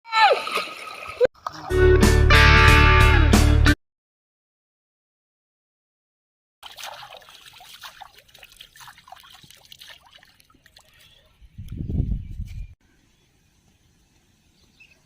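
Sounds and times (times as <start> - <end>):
water trickling and splashing: 0.2 - 1.7, 6.6 - 11.7.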